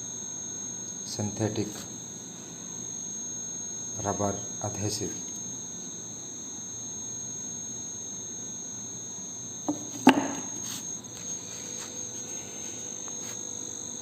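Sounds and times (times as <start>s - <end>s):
crickets trilling: 0.0s - 14.0s
sharp knock: 9.7s - 10.5s.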